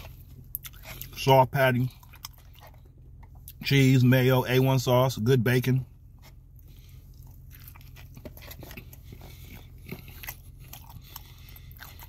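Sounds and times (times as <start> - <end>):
person chewing with mouth clicks: 0.0 - 1.2, 1.8 - 3.6, 7.1 - 12.0.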